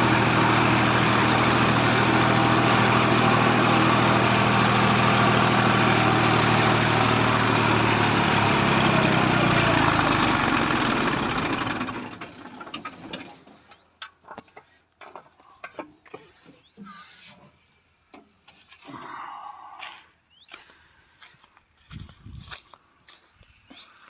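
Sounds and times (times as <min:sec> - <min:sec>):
tractor engine running: 0:00.0 - 0:15.9.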